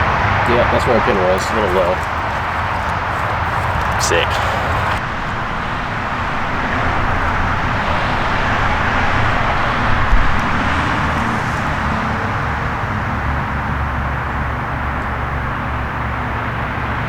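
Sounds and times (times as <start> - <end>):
steady rushing outdoor noise: 0.2 - 5.0.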